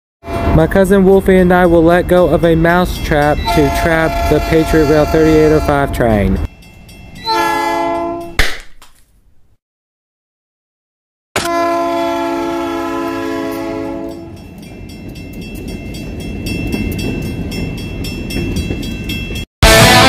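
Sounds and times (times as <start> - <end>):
train rumbling past: 0.2 - 8.3, 12.0 - 20.0
locomotive horn chord: 3.4 - 6.0, 7.3 - 8.3, 11.4 - 14.4, 19.6 - 20.0.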